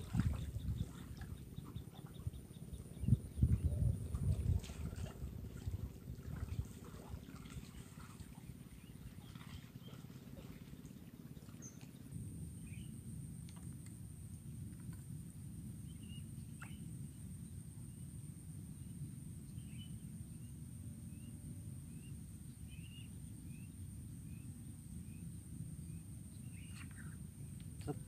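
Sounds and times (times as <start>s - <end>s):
small bird chirping: 15.9s - 16.9s, 25.8s - 28.0s.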